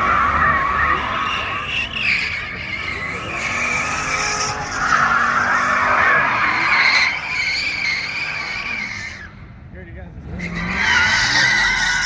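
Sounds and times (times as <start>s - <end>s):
car engine revving high: 0.0s - 9.5s, 10.1s - 12.0s
tires screeching on pavement: 0.0s - 12.0s.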